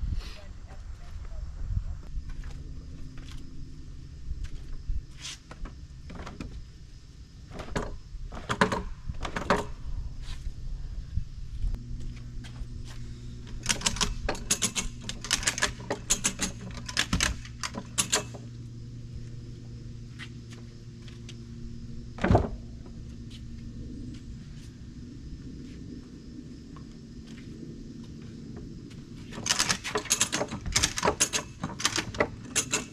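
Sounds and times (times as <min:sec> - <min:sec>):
low engine hum: 0:00.0 - 0:29.5
sharp clicks and knocks: 0:07.5 - 0:09.8, 0:13.5 - 0:18.4, 0:29.4 - 0:32.9.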